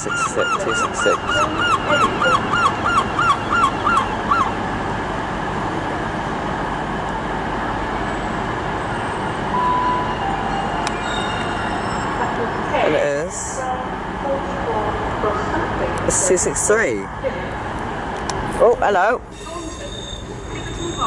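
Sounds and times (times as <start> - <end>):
bird calling: 0.0 - 4.6
diesel trains rumbling: 0.0 - 21.0
short beep: 9.6 - 12.3.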